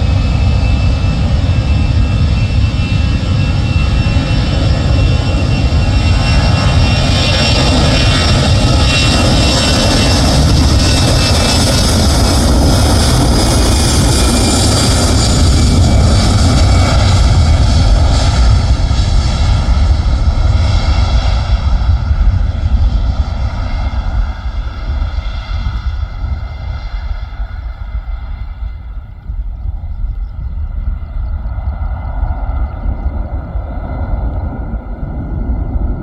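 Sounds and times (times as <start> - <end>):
airliner engines roaring: 0.0 - 36.0.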